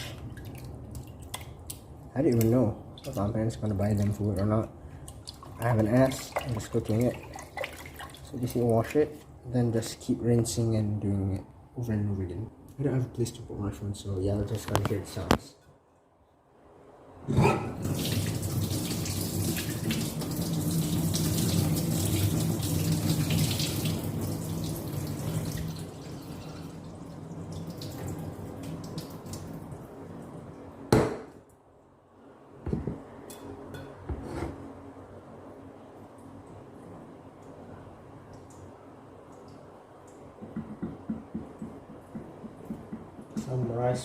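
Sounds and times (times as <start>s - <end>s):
water sloshing: 3.0s - 8.9s.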